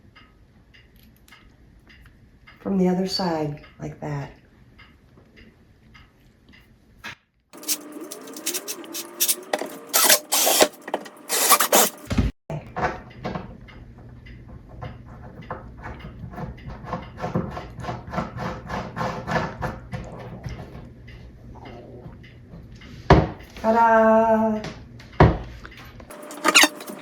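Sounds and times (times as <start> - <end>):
screw driven into wood: 8.4 - 10.7.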